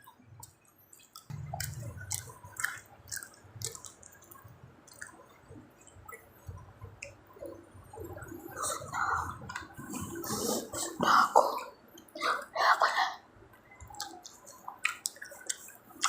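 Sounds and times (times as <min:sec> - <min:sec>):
chewing food: 0:00.0 - 0:12.2, 0:13.5 - 0:16.0
wet mouth smacks and clicks: 0:01.0 - 0:05.2, 0:13.8 - 0:16.0.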